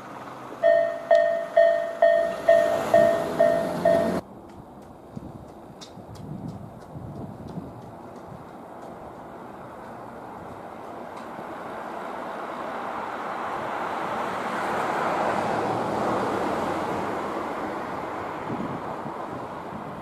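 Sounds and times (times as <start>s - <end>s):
vehicle passing by: 0.0s - 4.2s, 9.1s - 19.7s.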